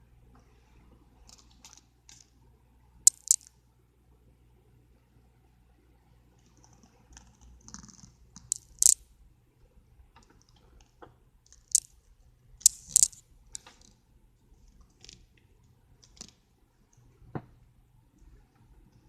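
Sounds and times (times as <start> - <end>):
clicks and rustles of handled objects: 3.1 - 3.5, 6.4 - 9.0, 10.2 - 12.0, 12.6 - 14.0.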